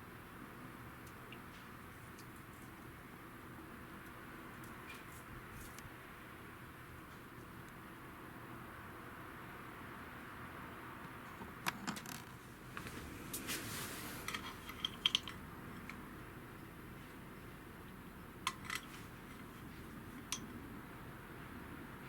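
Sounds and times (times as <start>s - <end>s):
small metal parts clinking: 14.3s - 15.4s, 18.5s - 19.0s.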